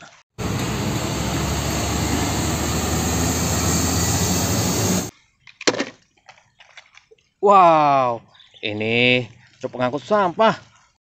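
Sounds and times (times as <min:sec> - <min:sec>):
road and traffic noise: 0:00.4 - 0:05.1
truck engine running: 0:00.4 - 0:05.1.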